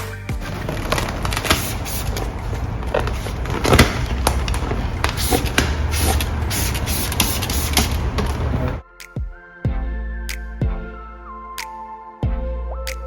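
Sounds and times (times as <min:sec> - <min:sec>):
squeegee scraping: 0:00.4 - 0:08.8.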